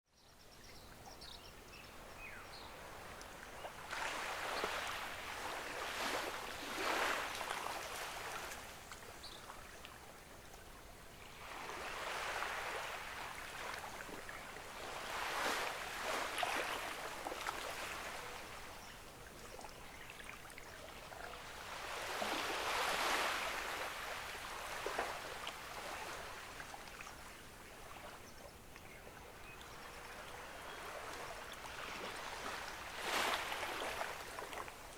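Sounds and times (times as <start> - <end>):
ocean waves washing on beach: 2.7 - 9.0, 11.3 - 18.8, 21.4 - 26.9, 30.6 - 34.9.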